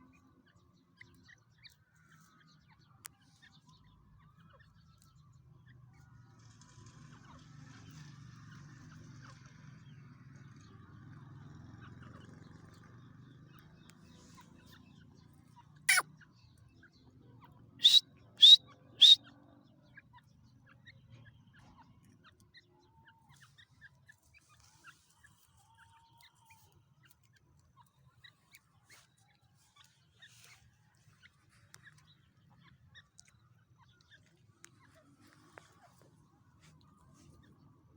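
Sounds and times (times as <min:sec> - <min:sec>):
birds calling: 0:17.8 - 0:19.2
faint bird chirps: 0:17.8 - 0:19.2.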